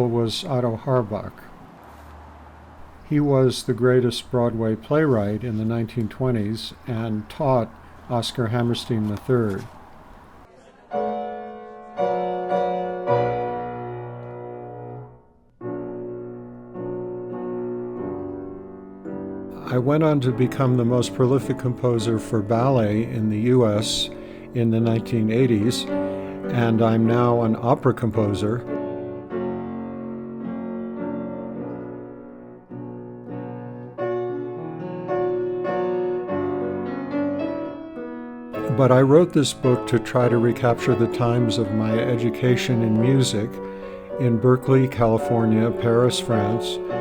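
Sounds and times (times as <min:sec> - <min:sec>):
slow piano chords: 0:00.0 - 0:47.0.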